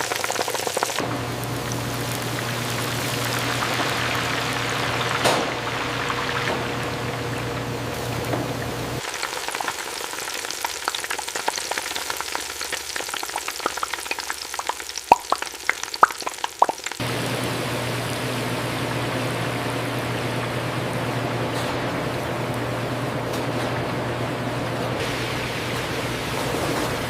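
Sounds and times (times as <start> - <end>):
chicken frying in hot oil: 0.0 - 27.0.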